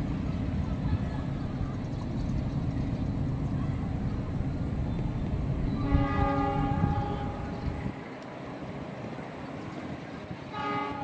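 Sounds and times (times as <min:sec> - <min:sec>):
train rumbling on tracks: 0:00.0 - 0:11.0
locomotive horn blast: 0:05.8 - 0:07.7, 0:10.5 - 0:11.0.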